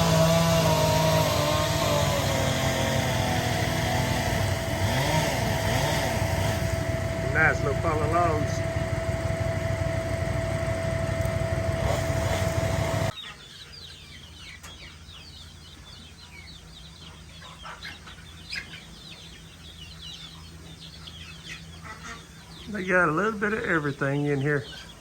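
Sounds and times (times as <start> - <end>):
engine running: 0.0 - 13.2
chicks peeping and clucking: 0.0 - 25.0.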